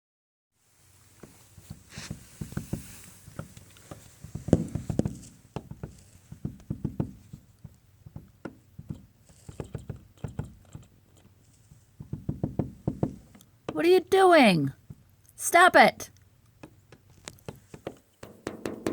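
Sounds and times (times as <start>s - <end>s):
woodpecker pecking on wooden door: 1.6s - 13.8s, 16.5s - 18.9s.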